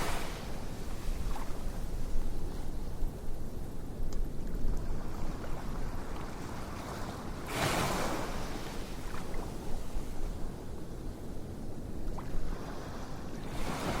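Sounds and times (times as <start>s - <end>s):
wave washing in: 0.0s - 1.8s, 4.9s - 10.4s, 12.5s - 14.0s
low rumble of surf: 0.0s - 14.0s.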